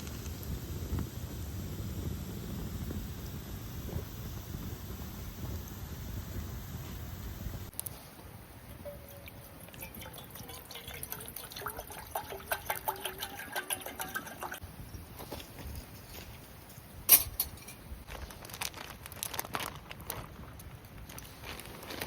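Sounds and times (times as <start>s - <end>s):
liquid pouring into container: 9.0s - 14.6s.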